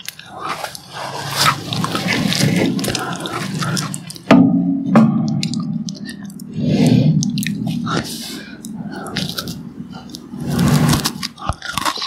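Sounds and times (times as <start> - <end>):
biscuit chewing crackle: 0.0 - 4.3, 5.4 - 12.0
loud biscuit crunches: 9.0 - 12.0.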